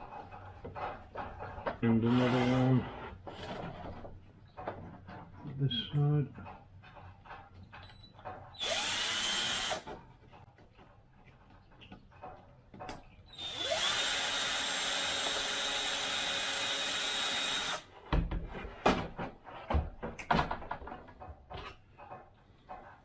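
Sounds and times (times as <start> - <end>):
power screwdriver running: 8.6 - 9.8, 13.4 - 17.8
clicks and knocks of tools: 18.9 - 23.0.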